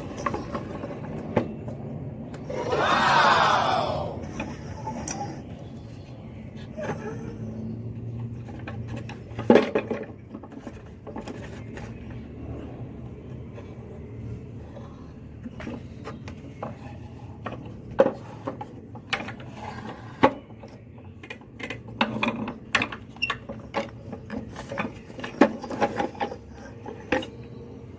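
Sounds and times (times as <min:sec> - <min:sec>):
wooden parts clicking and knocking: 0:08.0 - 0:12.3, 0:15.4 - 0:27.9.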